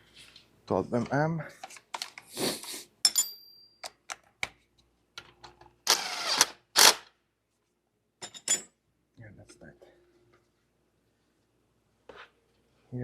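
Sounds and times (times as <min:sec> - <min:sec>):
metal tool clinks: 0:03.0 - 0:03.9.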